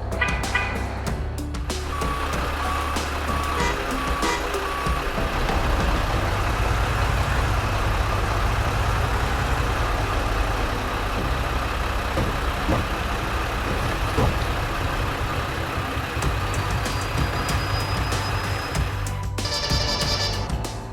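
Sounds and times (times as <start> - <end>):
truck engine idling: 0.0 - 20.9.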